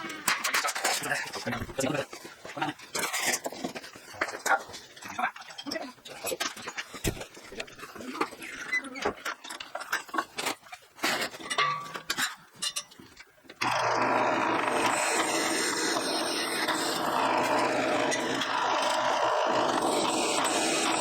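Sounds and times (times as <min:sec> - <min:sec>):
power tool cutting metal: 0:13.6 - 0:21.0.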